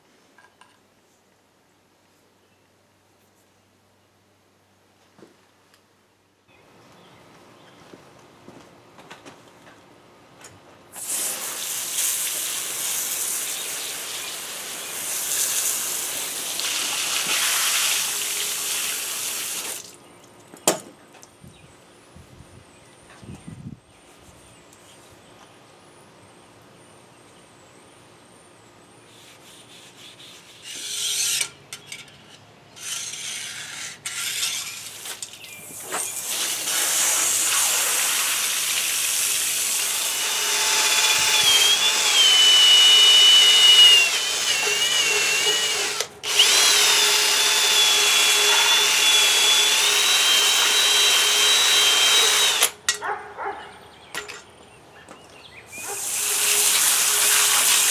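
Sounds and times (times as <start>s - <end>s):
power tool motor whine: 11.0s - 19.8s, 35.7s - 52.8s, 55.7s - 57.9s.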